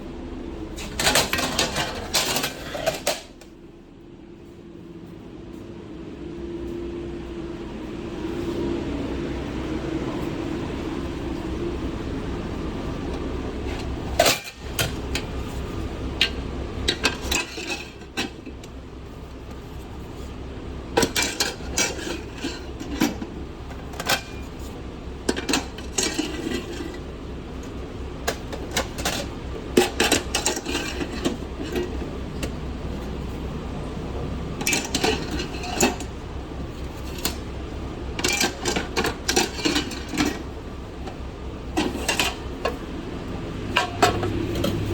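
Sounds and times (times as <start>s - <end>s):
kitchen equipment hum: 0.0s - 44.9s
pans and utensils clinking: 0.8s - 3.4s, 16.2s - 18.7s, 20.9s - 24.6s, 25.2s - 27.1s, 28.2s - 32.6s, 34.6s - 36.2s, 38.2s - 40.6s, 41.7s - 42.8s, 43.6s - 44.9s.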